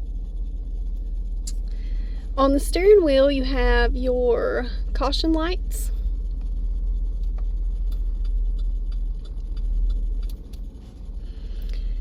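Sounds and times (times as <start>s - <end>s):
low rumble inside car cabin: 0.0s - 12.0s
light clicks and ticks: 7.2s - 11.0s.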